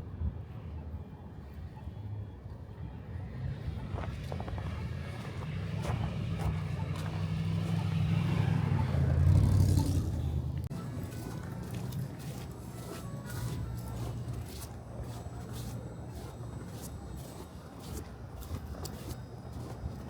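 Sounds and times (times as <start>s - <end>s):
vehicle engine passing by: 3.3s - 18.0s.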